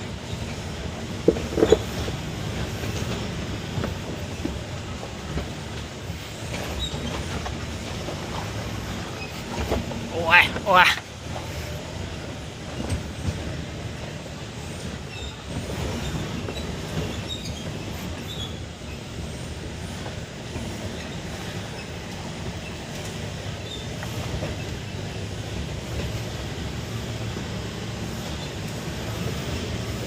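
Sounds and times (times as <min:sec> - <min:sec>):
truck engine rumbling: 0:00.0 - 0:30.0.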